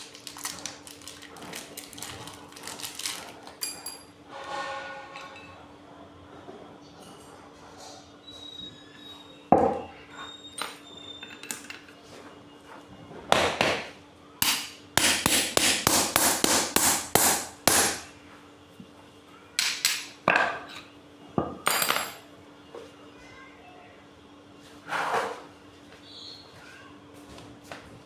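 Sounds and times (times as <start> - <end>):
hammer blows on metal: 14.4 - 18.1.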